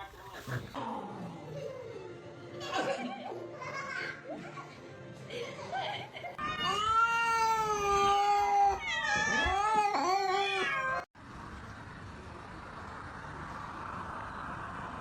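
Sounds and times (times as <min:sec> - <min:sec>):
cat yowling: 0:06.5 - 0:11.1
steady background noise: 0:11.2 - 0:15.0.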